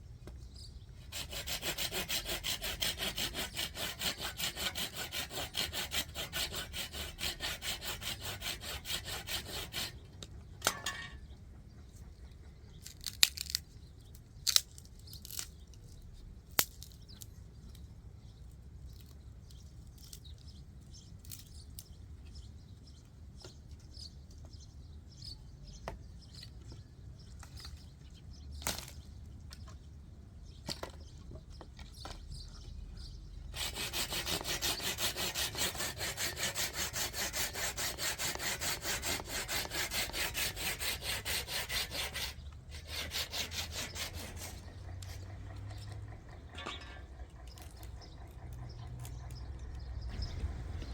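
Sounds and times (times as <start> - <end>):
fast rasping strokes: 1.0 - 10.0, 33.5 - 49.3, 50.1 - 50.9.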